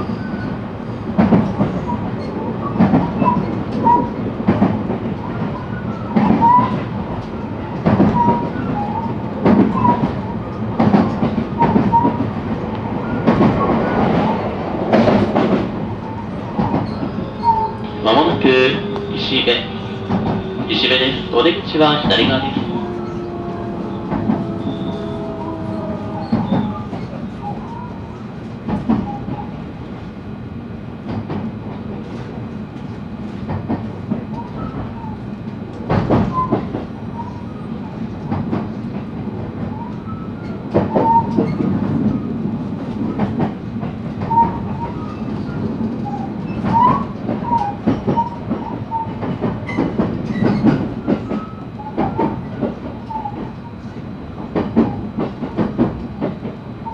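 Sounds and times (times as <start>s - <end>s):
train wheel rumble: 0.0s - 56.9s
rail-joint clicks: 1.2s - 30.0s, 31.1s - 37.4s, 38.0s - 56.9s
wheel squeals: 16.0s - 28.0s.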